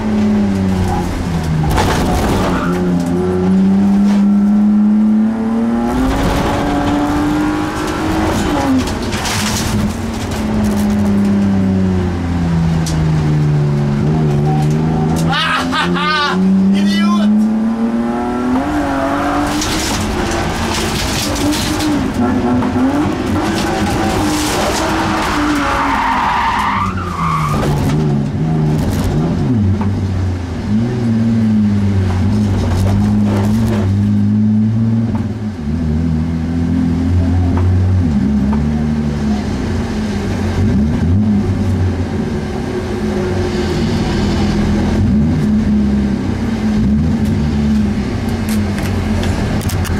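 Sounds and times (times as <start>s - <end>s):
car engine revving: 0.0s - 49.9s
tyres sliding on gravel: 23.1s - 27.6s.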